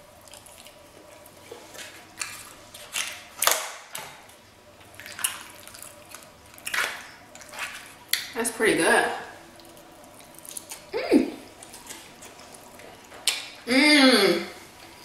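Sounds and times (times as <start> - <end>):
wet chewing and lip-smacking: 0.1 - 3.6, 4.3 - 8.3, 9.5 - 10.9, 11.5 - 13.6.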